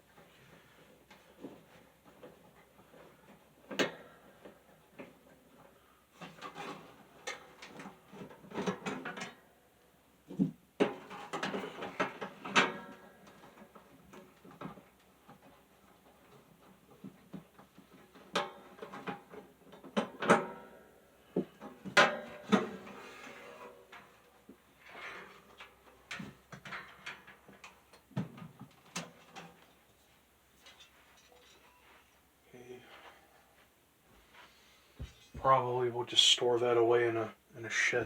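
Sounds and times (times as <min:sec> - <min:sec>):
box fan clunking and rattling: 0:10.3 - 0:23.3, 0:25.3 - 0:29.6.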